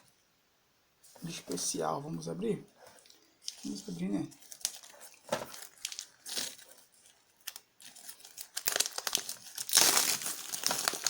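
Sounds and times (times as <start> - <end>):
packaging crinkling and tearing: 3.0 - 11.0.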